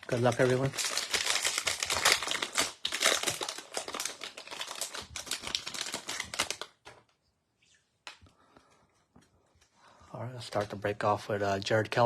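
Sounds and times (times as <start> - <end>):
plastic wrapper tearing and crinkling: 0.0 - 6.9.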